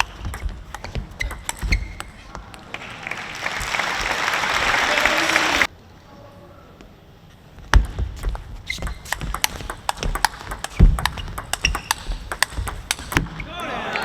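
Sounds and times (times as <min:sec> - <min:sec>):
table tennis ball clicks: 0:00.0 - 0:02.6, 0:08.3 - 0:13.3
crowd applause: 0:02.7 - 0:05.7.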